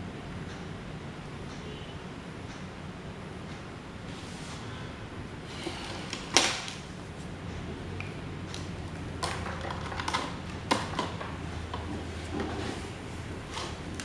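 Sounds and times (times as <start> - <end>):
parts clicking and knocking: 8.0 - 14.0.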